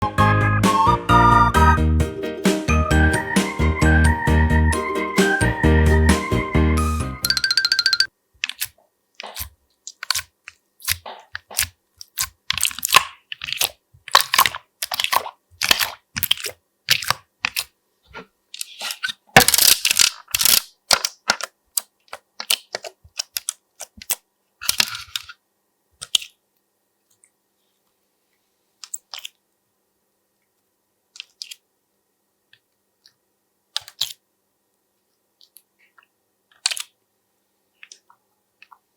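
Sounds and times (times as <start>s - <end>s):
slime crackling and popping: 8.4s - 17.7s.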